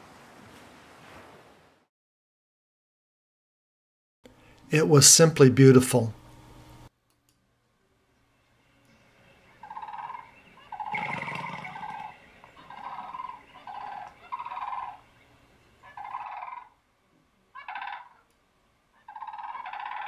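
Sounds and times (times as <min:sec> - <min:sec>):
bird calling: 0:09.5 - 0:16.8, 0:17.6 - 0:18.3, 0:19.0 - 0:20.0.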